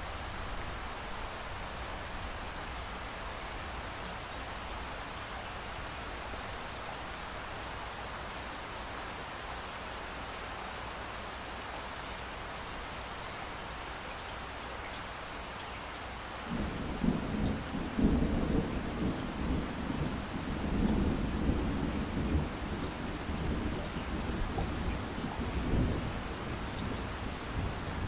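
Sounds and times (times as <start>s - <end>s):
steady rainfall: 0.0s - 28.0s
thunder rumbling: 16.5s - 28.0s.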